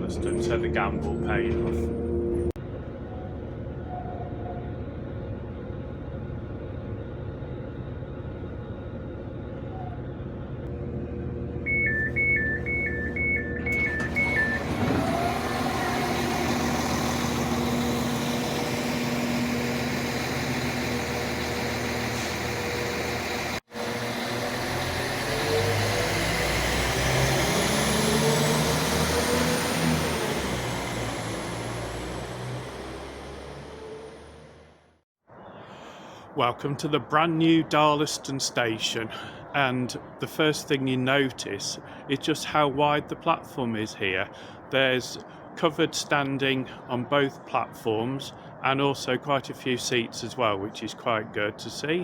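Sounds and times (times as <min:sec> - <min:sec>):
train running with whine: 0:00.0 - 0:34.8
train door warning beeps: 0:11.7 - 0:15.1.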